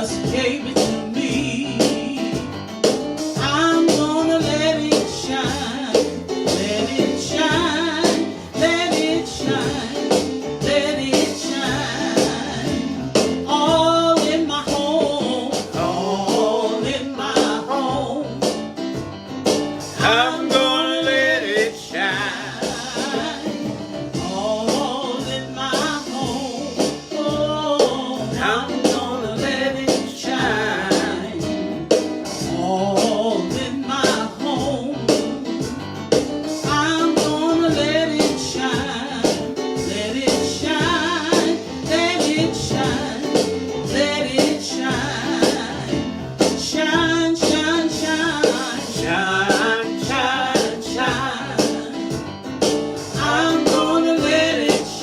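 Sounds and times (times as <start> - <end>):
band playing worship music: 0.0 - 55.0
person singing: 3.4 - 18.5, 20.0 - 31.7, 32.5 - 35.6, 46.7 - 52.2, 53.2 - 55.0.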